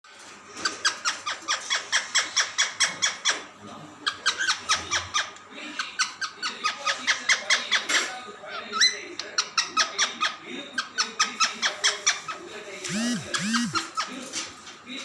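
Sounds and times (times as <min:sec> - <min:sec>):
parrot chirping: 0:12.9 - 0:14.0.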